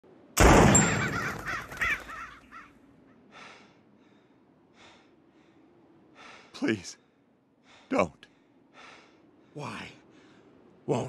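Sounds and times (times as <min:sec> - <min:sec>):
bird cawing: 0:00.7 - 0:03.6.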